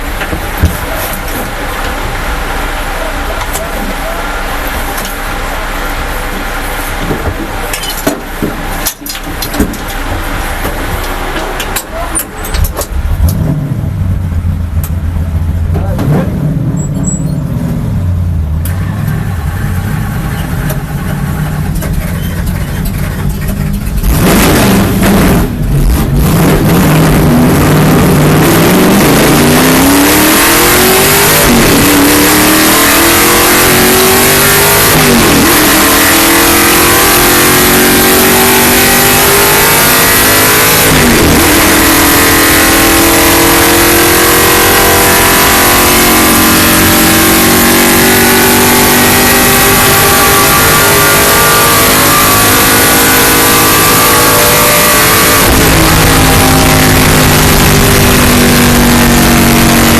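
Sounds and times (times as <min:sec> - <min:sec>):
race car engine upshifting: 0:00.0 - 0:59.9
wind and road noise: 0:30.9 - 0:59.9.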